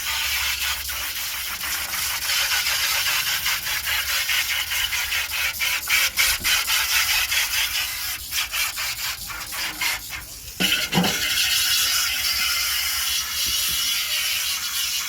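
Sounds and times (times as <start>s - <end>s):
rubbing strokes on metal parts: 2.4s - 15.0s
steady rubbing hiss: 4.1s - 14.1s.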